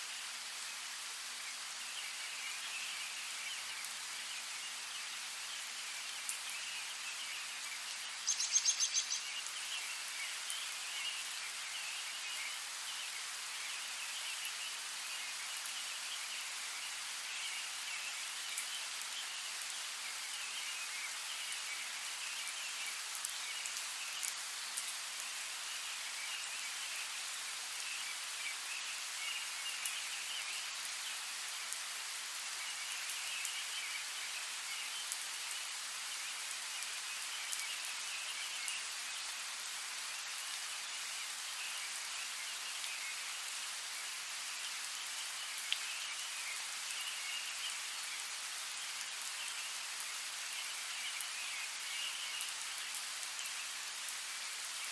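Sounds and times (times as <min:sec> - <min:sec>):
steady rain hiss: 0:00.0 - 0:54.9
high trilling of frogs or insects: 0:08.2 - 0:09.3.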